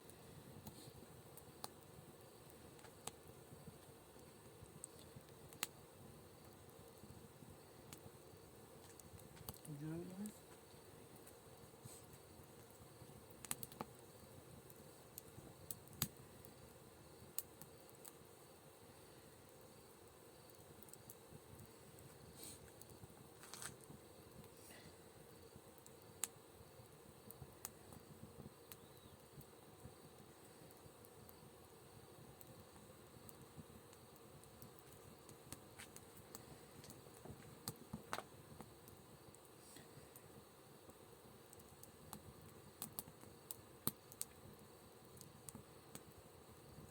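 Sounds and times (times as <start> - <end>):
wood fire crackling: 0.0 - 46.9
sharp clicks and snaps: 13.4 - 13.9, 42.8 - 44.4.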